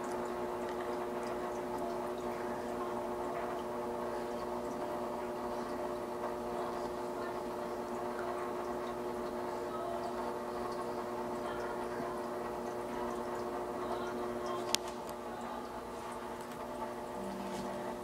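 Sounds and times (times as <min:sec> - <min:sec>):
water pump humming: 0:00.0 - 0:18.0
water trickling and dripping: 0:00.0 - 0:18.0.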